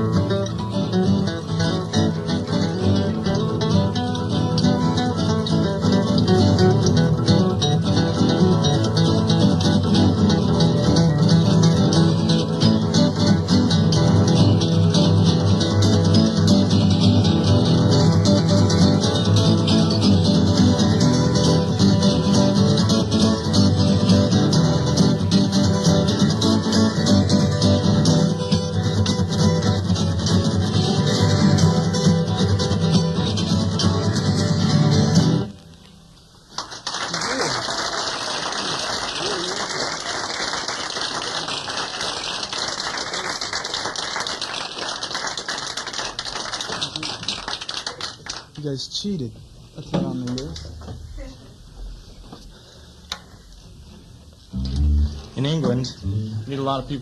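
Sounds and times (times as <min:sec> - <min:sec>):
acoustic guitars strumming: 0:00.0 - 0:36.2, 0:51.8 - 0:57.0
audience applauding: 0:36.5 - 0:48.8.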